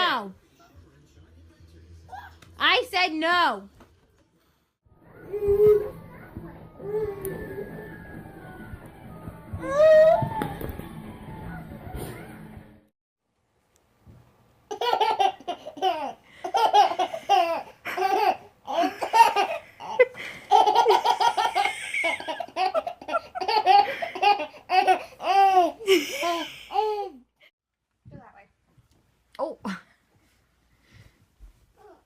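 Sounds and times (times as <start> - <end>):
small child laughing: 14.7 - 27.2.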